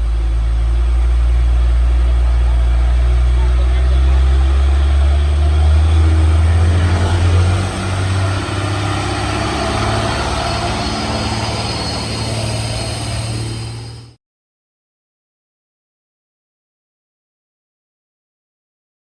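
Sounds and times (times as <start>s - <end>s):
heavy truck engine drone: 1.1s - 14.2s.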